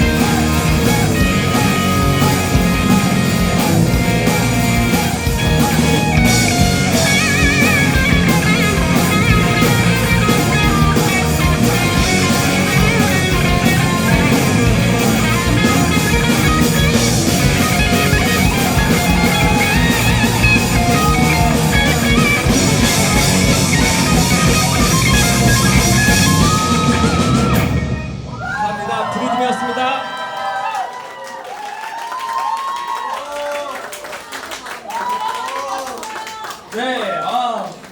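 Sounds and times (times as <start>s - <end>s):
electric guitar: 0.0s - 28.3s
live rock band: 0.0s - 28.7s.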